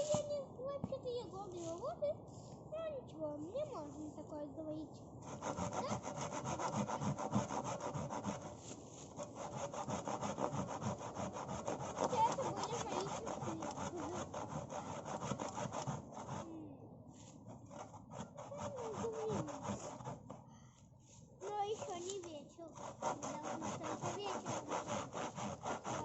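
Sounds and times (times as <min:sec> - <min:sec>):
hand saw cutting wood: 0:05.2 - 0:16.6, 0:17.4 - 0:20.4, 0:21.4 - 0:26.0.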